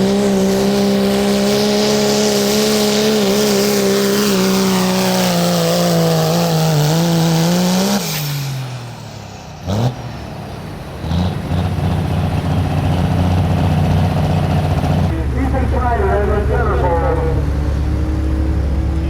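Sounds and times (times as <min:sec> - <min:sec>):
truck diesel engine at full throttle: 0:00.0 - 0:19.0.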